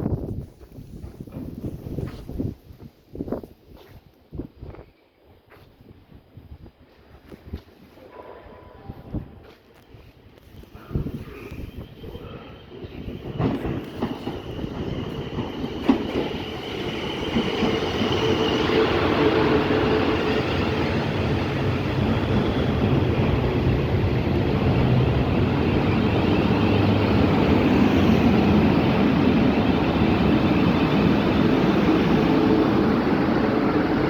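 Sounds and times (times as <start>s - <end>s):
train wheels clicking over rail joints: 13.2s - 18.4s.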